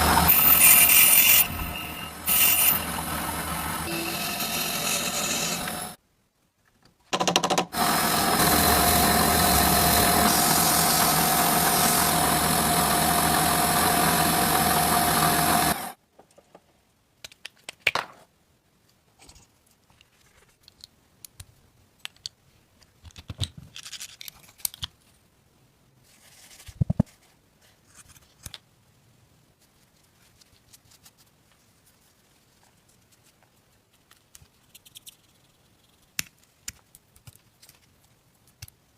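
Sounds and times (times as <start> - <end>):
power tool whining: 0.0 - 6.0, 7.8 - 16.0
clicks and scrapes of parts: 19.2 - 25.1.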